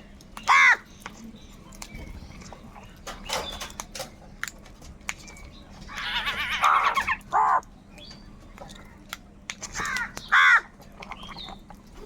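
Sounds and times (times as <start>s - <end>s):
crows cawing: 0.4s - 0.9s, 5.9s - 7.6s, 9.8s - 10.8s.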